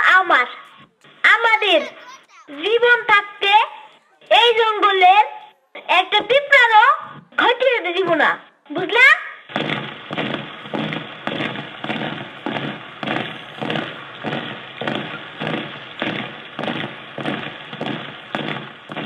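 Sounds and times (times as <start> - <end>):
percussion beat: 0.0 - 4.7, 9.5 - 19.0.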